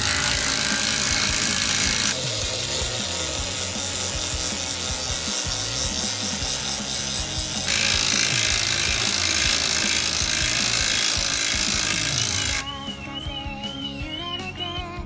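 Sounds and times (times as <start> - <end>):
steering creaking and rubbing: 0.0 - 12.6.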